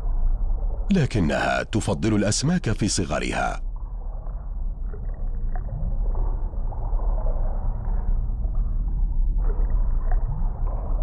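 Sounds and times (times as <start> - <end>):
muffled underwater rumble: 0.0 - 11.0.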